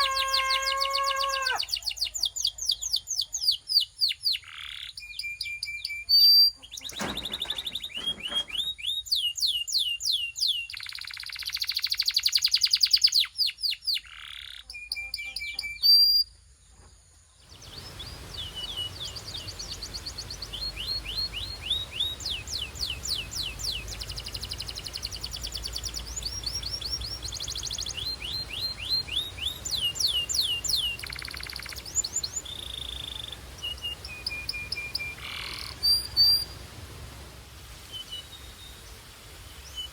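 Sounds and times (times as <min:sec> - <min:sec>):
canary singing: 0:00.0 - 0:03.0, 0:20.4 - 0:36.5
background hiss: 0:00.0 - 0:39.9.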